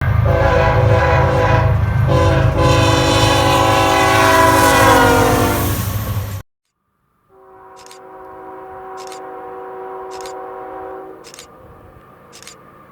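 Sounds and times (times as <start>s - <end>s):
locomotive air horn: 0.0s - 6.4s, 7.3s - 11.5s
locomotive engine rumble: 0.0s - 6.4s.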